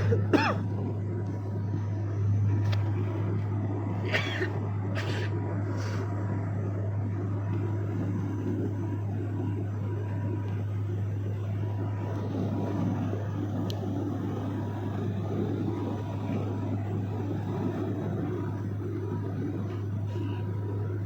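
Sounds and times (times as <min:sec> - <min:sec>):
airplane engine drone: 0:00.0 - 0:21.0
thin steady whine: 0:00.0 - 0:21.0.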